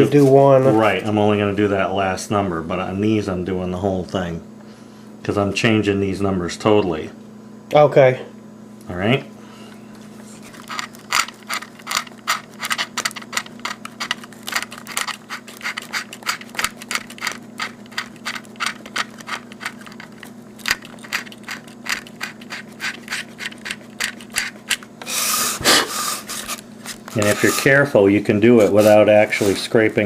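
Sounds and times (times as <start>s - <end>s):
steady low hum: 0.0s - 30.0s
knife blade scraping plastic: 10.4s - 27.8s.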